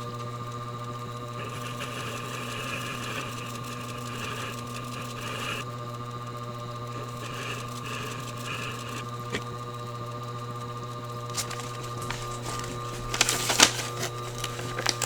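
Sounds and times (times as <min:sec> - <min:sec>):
sharpening machine motor hum: 0:11.3 - 0:15.0.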